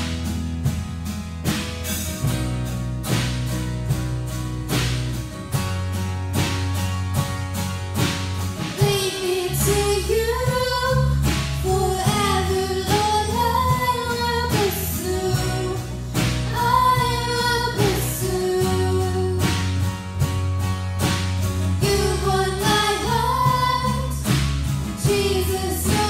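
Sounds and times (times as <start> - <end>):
drum kit: 0.0 - 26.0
electric guitar: 0.0 - 26.0
strummed acoustic guitars: 0.0 - 26.0
woman singing: 8.8 - 19.8, 21.8 - 26.0.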